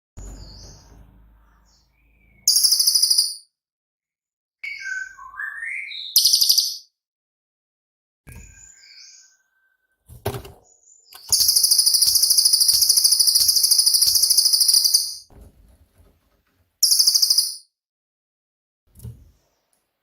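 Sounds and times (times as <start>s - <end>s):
bird singing rapid high trill: 0.2s - 3.5s, 11.1s - 15.3s, 16.8s - 17.7s.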